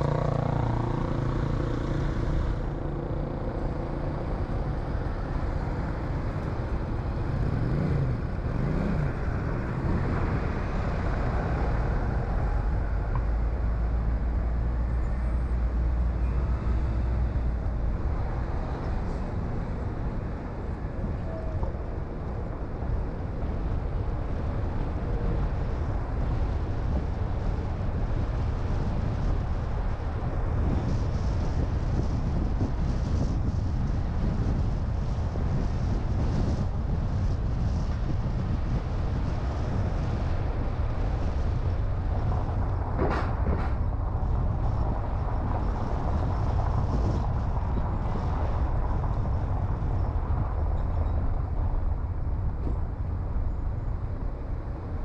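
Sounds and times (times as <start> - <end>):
car engine and tyre noise: 0.0 - 55.0
surrounding traffic: 0.0 - 55.0.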